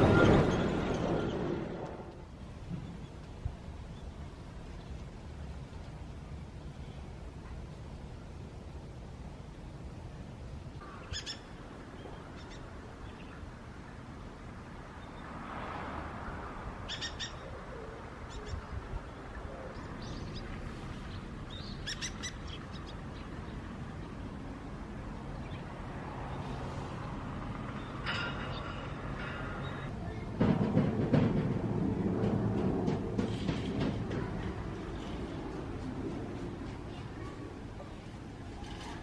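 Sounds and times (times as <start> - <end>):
birds chirping: 16.9 - 23.7.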